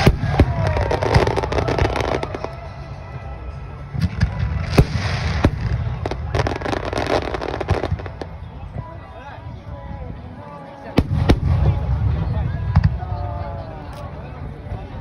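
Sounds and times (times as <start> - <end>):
fireworks crackling: 0.0 - 8.5.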